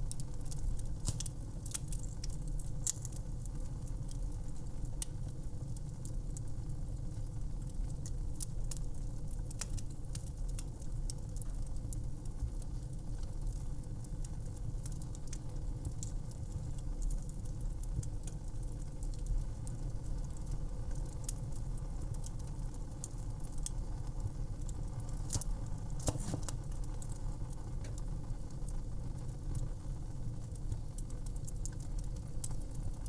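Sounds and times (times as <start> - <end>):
low rumble of burning: 0.0 - 33.0
fire pops and snaps: 0.1 - 4.4, 24.6 - 29.6.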